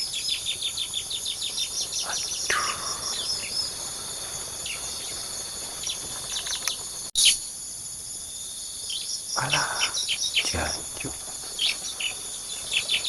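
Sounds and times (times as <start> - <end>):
high insect drone: 0.0 - 13.0
bird high chirps: 8.9 - 13.0.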